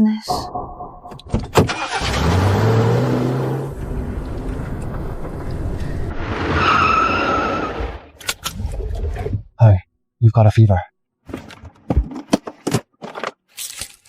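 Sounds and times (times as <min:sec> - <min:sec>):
vehicle rushing noise: 0:01.1 - 0:08.2.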